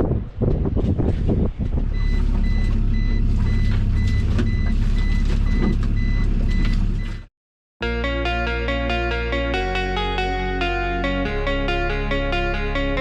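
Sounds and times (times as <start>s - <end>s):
background music: 7.8s - 13.0s.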